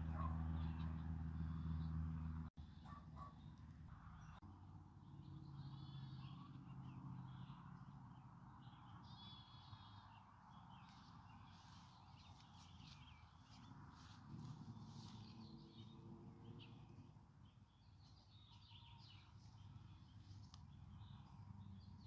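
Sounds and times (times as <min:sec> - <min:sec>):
birds chirping and trilling: 0:00.1 - 0:22.0.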